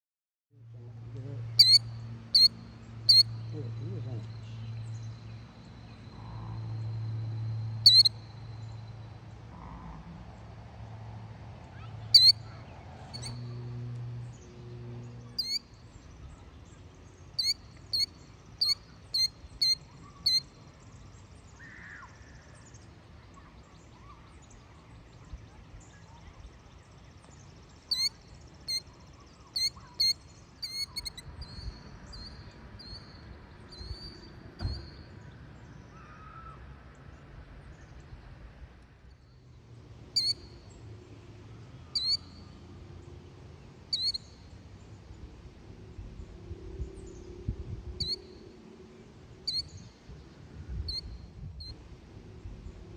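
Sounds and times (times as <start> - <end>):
killdeer calling: 1.2 - 4.6, 7.8 - 8.7, 12.1 - 13.4, 15.3 - 15.7, 17.3 - 20.6, 27.8 - 33.1, 40.1 - 40.6, 41.8 - 42.5, 43.9 - 44.4, 48.0 - 48.2, 49.4 - 49.9.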